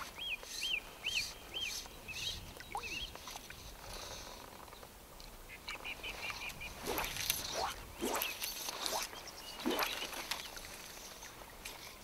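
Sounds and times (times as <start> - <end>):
small songbird singing: 0.0 - 3.2.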